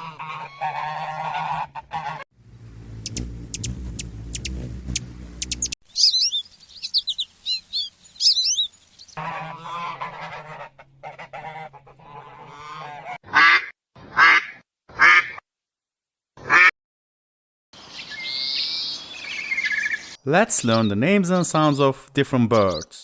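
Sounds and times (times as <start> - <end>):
birds chirping and calling: 2.9 - 9.9, 17.8 - 23.0.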